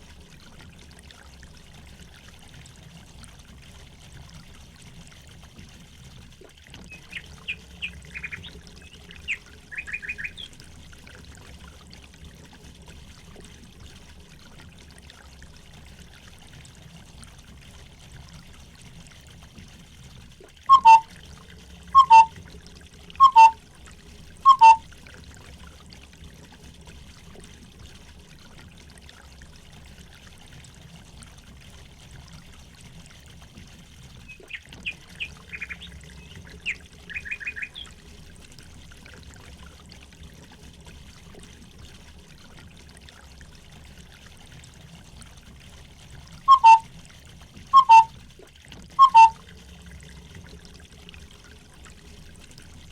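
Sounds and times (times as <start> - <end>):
water trickling: 0.0 - 52.9
bird chirping: 7.8 - 10.5, 20.7 - 21.0, 22.0 - 22.3, 23.2 - 23.6, 24.5 - 24.8, 35.2 - 37.9, 46.5 - 46.8, 47.8 - 48.1, 49.0 - 49.4.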